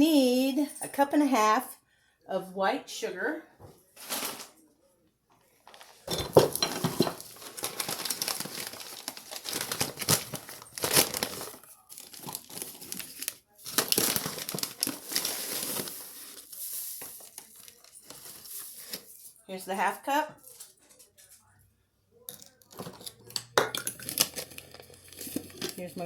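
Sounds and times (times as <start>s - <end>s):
sugar bag crinkling: 5.6s - 19.5s, 23.6s - 26.0s.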